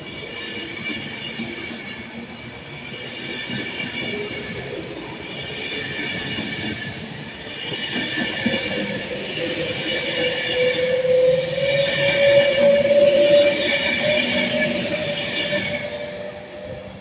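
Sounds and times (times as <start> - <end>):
train high whine: 0.0 - 17.0
train tone rising in pitch: 8.2 - 17.0.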